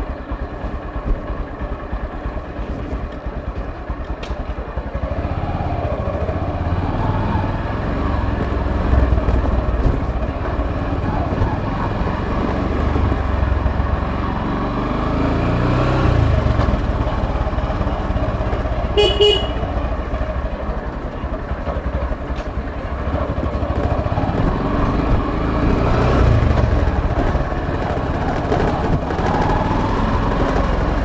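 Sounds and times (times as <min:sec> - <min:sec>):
motorcycle engine running: 0:00.0 - 0:31.0
motorcycle horn beep: 0:18.8 - 0:20.0.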